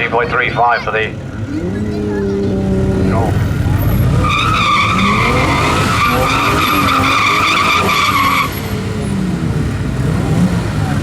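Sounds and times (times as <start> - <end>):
car engine revving: 0.3 - 11.0
tyres squealing: 0.5 - 8.9.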